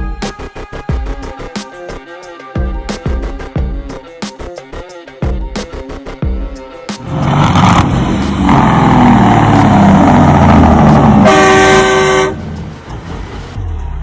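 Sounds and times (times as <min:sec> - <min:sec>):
truck engine running: 0:07.0 - 0:14.0
truck air horn blast: 0:07.1 - 0:12.6.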